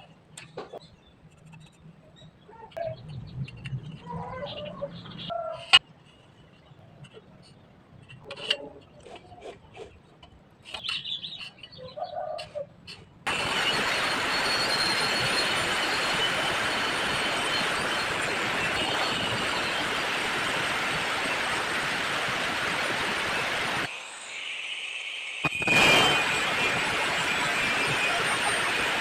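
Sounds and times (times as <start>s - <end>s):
welding arc hissing: 13.3s - 29.0s.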